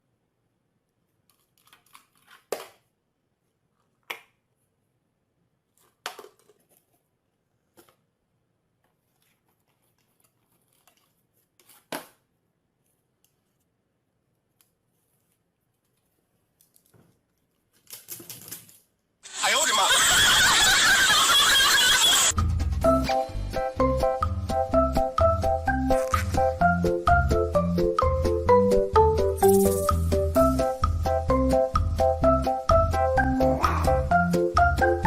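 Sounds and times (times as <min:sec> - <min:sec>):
crinkly rustles: 0:08.8 - 0:11.9, 0:14.5 - 0:19.0.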